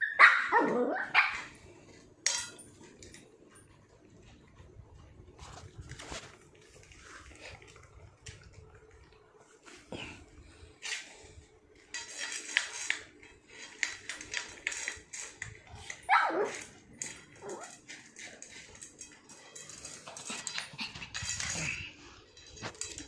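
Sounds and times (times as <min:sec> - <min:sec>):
dog crying: 0:00.0 - 0:01.4
dog whimpering and barking: 0:00.0 - 0:01.5, 0:16.0 - 0:16.7.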